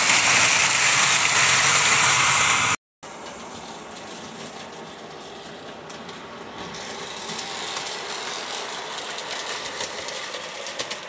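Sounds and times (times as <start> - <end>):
model train motor whirring: 0.0 - 2.8, 6.6 - 11.0.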